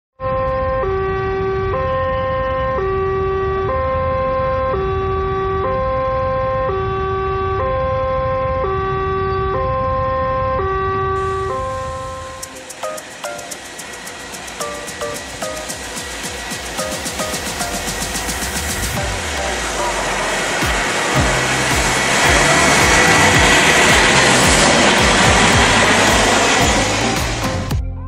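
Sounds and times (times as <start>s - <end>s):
two-tone siren: 0.2s - 27.5s
low rumble: 17.0s - 28.0s.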